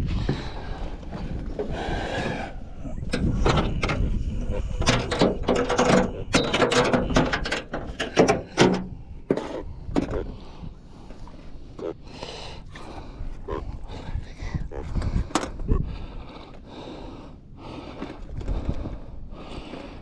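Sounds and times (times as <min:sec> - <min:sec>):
low rumble: 0:00.0 - 0:06.4
mechanical clicking and rattling: 0:03.0 - 0:09.0.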